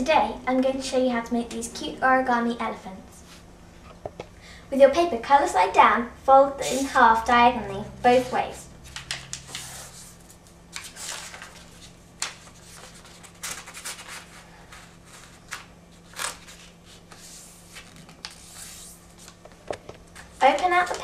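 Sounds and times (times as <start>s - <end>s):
paper being folded and creased: 8.9s - 19.6s.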